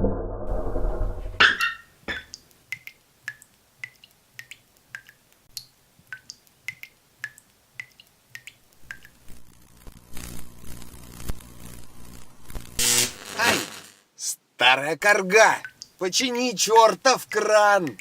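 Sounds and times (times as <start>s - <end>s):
water dripping from tap: 1.6s - 9.2s, 15.6s - 16.0s, 17.3s - 18.0s
low hum and hiss: 1.9s - 18.0s.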